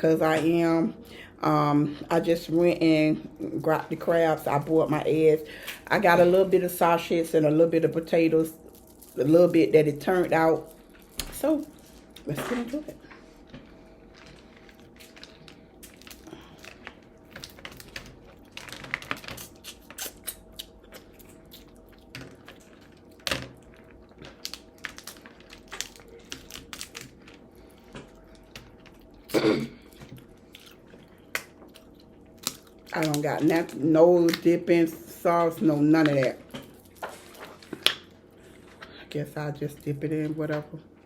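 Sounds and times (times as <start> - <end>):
chewing: 13.0 - 32.9
crab shells cracking: 14.2 - 29.1, 30.0 - 34.4.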